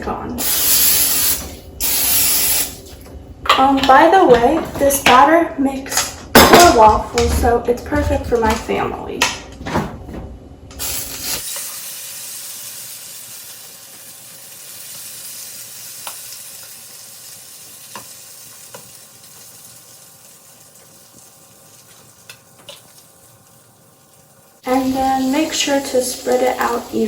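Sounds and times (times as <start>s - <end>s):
batter sizzling in waffle maker: 10.8s - 27.0s.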